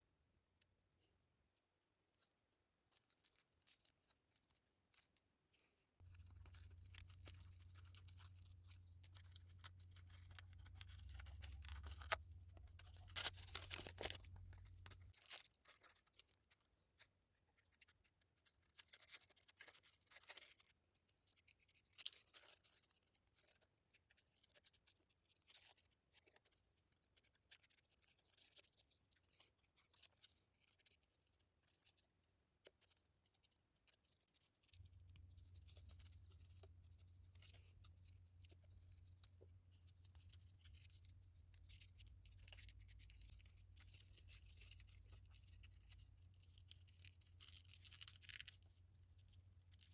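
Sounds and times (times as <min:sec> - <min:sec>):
paper being folded: 0:02.9 - 0:20.7, 0:32.7 - 0:49.9
low steady hum: 0:06.0 - 0:15.2, 0:34.8 - 0:49.9.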